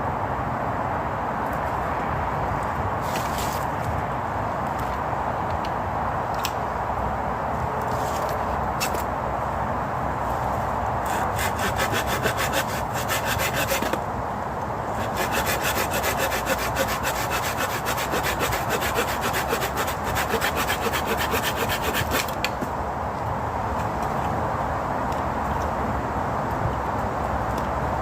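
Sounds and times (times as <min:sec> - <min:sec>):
hand saw cutting wood: 0:11.0 - 0:14.0, 0:14.9 - 0:22.6.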